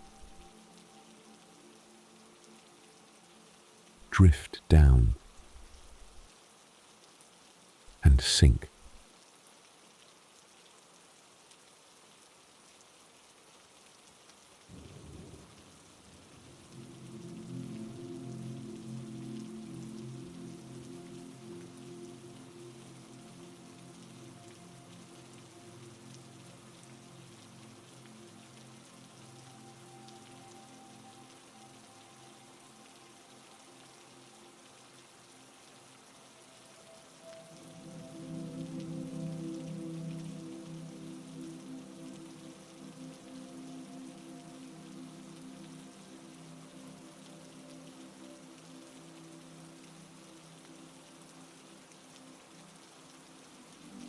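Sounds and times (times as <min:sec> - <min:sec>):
heavy rain: 0:00.0 - 0:54.0
heavy rain hissing: 0:08.0 - 0:09.0.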